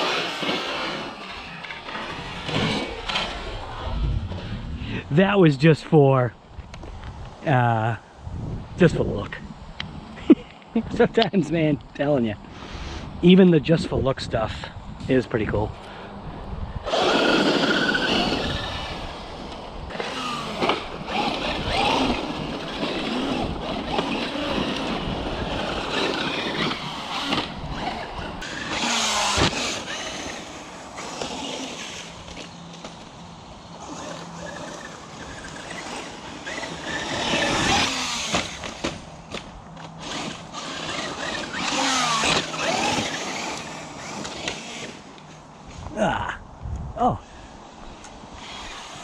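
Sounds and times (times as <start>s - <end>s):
rc truck electric motor whining: 0.0s - 4.5s, 16.8s - 45.2s, 48.3s - 49.0s
rush of tyres and chassis: 0.0s - 11.6s, 12.2s - 49.0s.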